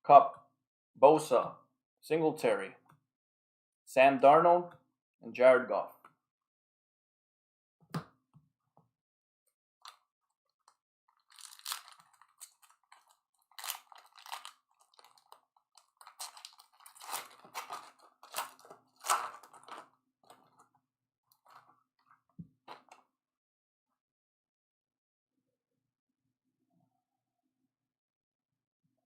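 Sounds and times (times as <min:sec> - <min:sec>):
card wrappers crinkling: 0:11.1 - 0:20.6.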